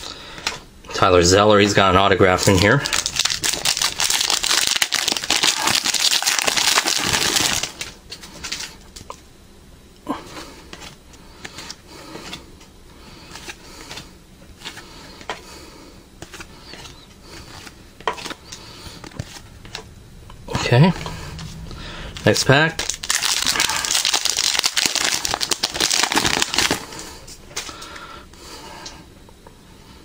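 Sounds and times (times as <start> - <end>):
wrapper crinkling: 2.4 - 8.8, 22.2 - 27.8
cards clicking and rustling: 16.2 - 19.9, 22.2 - 26.8.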